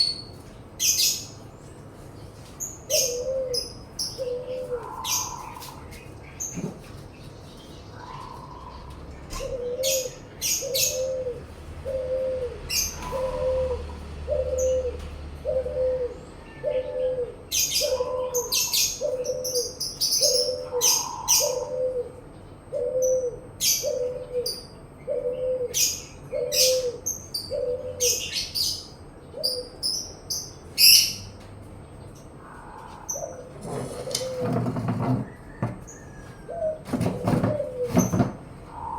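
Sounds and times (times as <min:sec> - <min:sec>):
small birds chirping: 0:00.0 - 0:38.9
dove cooing: 0:02.9 - 0:06.0, 0:07.9 - 0:28.7, 0:29.3 - 0:29.8, 0:32.4 - 0:38.9.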